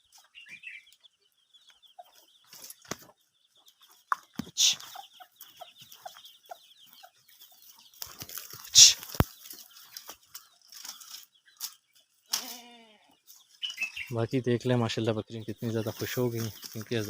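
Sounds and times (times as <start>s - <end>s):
chicks peeping: 0.0s - 12.4s, 13.1s - 17.0s
hen clucking: 0.2s - 11.7s.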